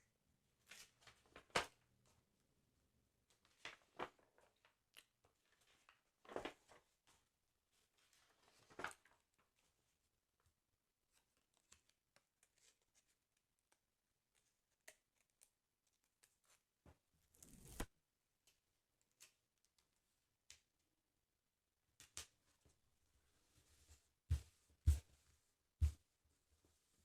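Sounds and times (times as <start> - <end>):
paper pages rustling: 3.3 - 9.2.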